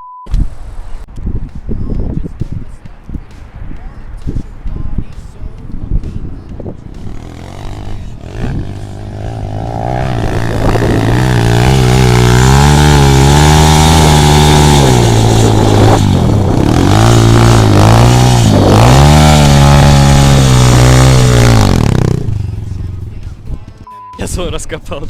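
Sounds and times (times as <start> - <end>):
motorcycle engine revving: 6.7 - 23.8.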